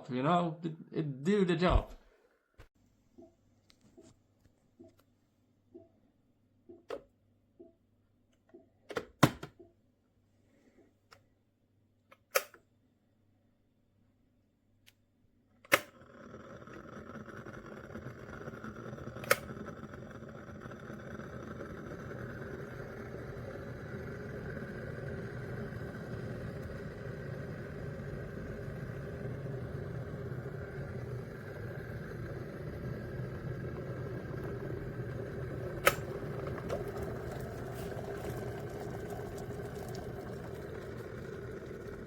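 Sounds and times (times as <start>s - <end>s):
electric kettle heating water: 15.7s - 42.0s.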